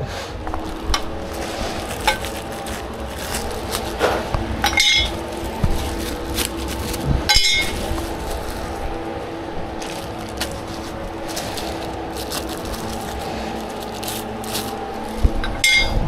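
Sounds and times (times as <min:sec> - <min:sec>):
steady hum: 0:00.0 - 0:16.0
metal tools clinking and knocking: 0:04.6 - 0:05.2, 0:07.3 - 0:07.8, 0:15.4 - 0:16.0.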